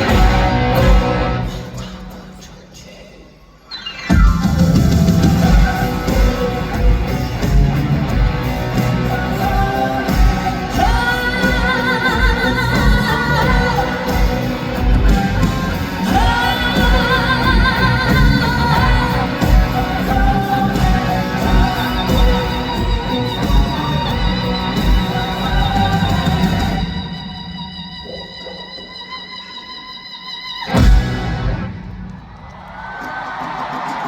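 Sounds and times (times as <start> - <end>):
band with steady drum beat: 0.0 - 2.2, 4.1 - 27.0
operatic wordless vocalise: 0.0 - 7.4.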